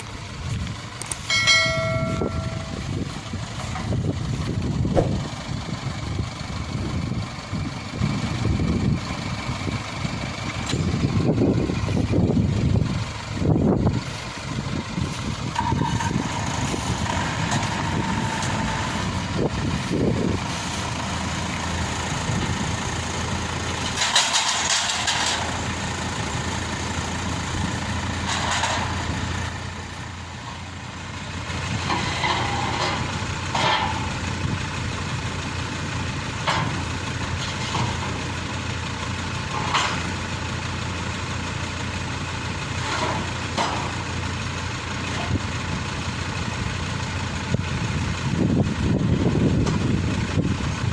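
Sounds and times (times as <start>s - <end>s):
combine harvester engine: 0.0s - 50.9s
clanks and knocks: 23.8s - 25.6s, 28.1s - 29.3s, 31.8s - 34.2s, 36.4s - 38.2s, 39.4s - 40.2s, 42.8s - 44.1s.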